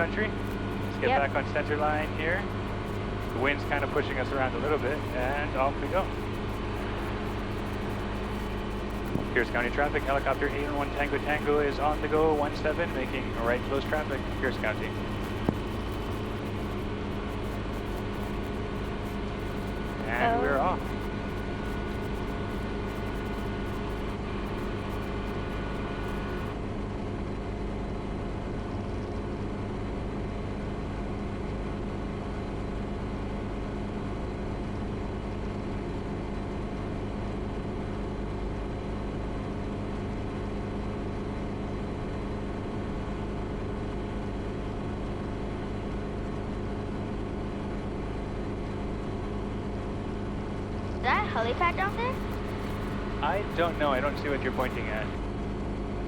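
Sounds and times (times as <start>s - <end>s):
helicopter engine and rotors: 0.0s - 56.0s.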